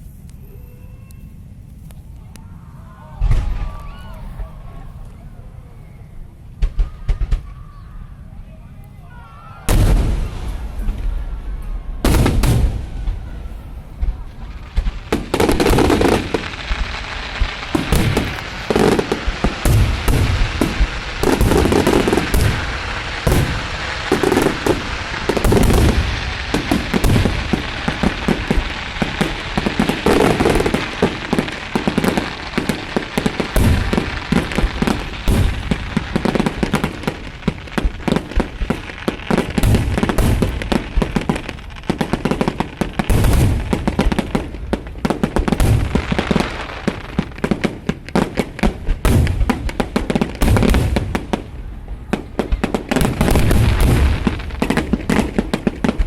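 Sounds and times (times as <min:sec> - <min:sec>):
fireworks cracks and pops: 0:12.1 - 0:56.0.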